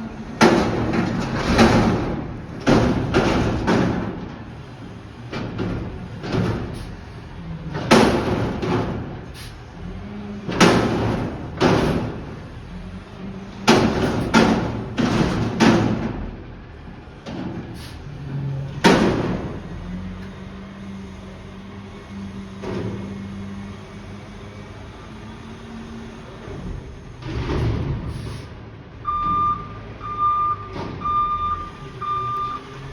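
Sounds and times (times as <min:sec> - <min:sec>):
truck engine droning: 0:00.0 - 0:32.9
bins banging and clattering: 0:00.3 - 0:04.5, 0:13.6 - 0:16.3, 0:26.4 - 0:28.4.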